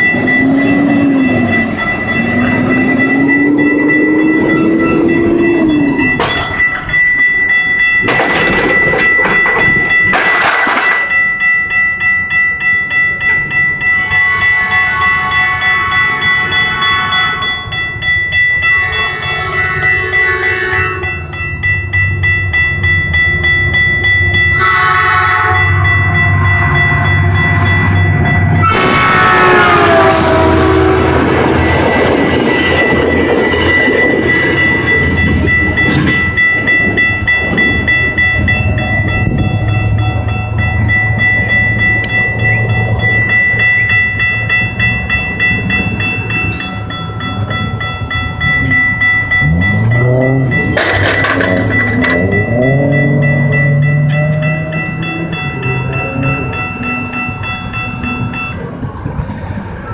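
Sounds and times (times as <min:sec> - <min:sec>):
crossing warning bell ringing: 0:00.0 - 0:59.9
train cars rumbling on rails: 0:00.0 - 0:59.9
train horn: 0:14.0 - 0:17.5, 0:18.7 - 0:21.1, 0:24.5 - 0:26.2, 0:28.6 - 0:31.7.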